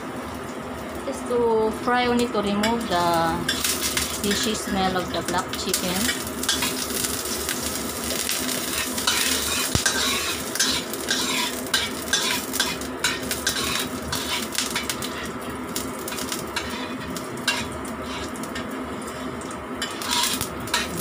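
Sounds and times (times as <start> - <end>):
ginger sizzling in hot oil: 0.0 - 21.0
spatula scraping a wok: 6.0 - 7.1, 8.5 - 21.0.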